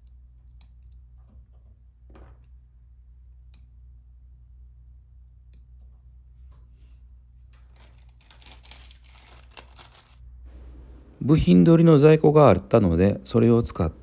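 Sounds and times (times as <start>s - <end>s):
small plastic clicks: 7.7s - 10.2s
rustling: 7.7s - 11.6s
steady low hum: 10.3s - 14.0s.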